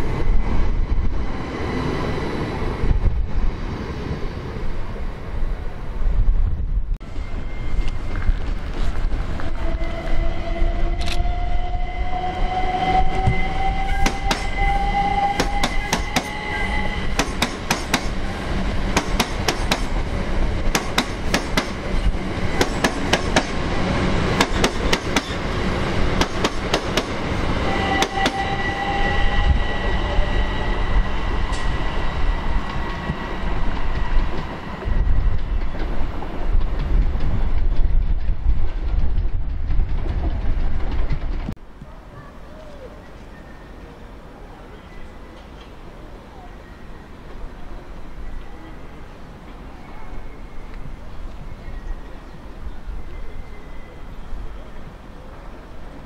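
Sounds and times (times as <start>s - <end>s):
train rumbling: 0.0s - 56.0s
train wheels clicking over rail joints: 14.0s - 14.6s, 15.3s - 16.5s, 17.1s - 18.2s, 18.8s - 27.3s.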